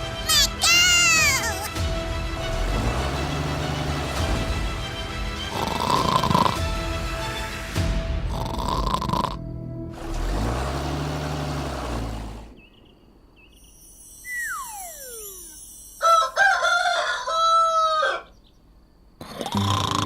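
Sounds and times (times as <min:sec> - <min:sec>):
falling whistle-like glide: 0:13.8 - 0:16.4
rooster crowing: 0:16.0 - 0:18.4.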